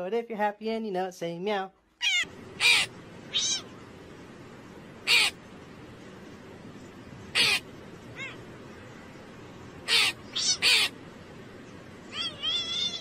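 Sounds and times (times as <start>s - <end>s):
steady background hiss: 0.0s - 13.0s
crow cawing: 2.0s - 2.9s, 5.1s - 5.4s, 7.3s - 7.6s, 9.9s - 10.9s.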